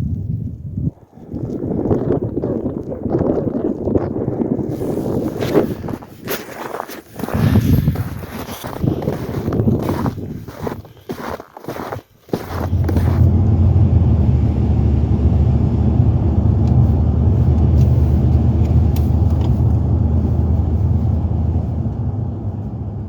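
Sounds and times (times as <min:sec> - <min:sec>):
vehicle engine rumbling: 0:11.8 - 0:23.0.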